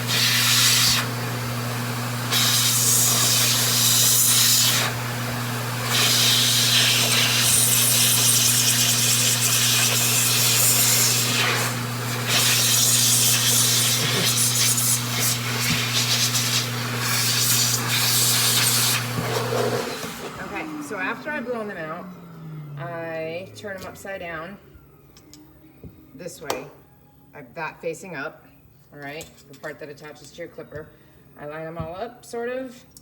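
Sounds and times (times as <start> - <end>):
small dryer motor humming: 0.0 - 23.4.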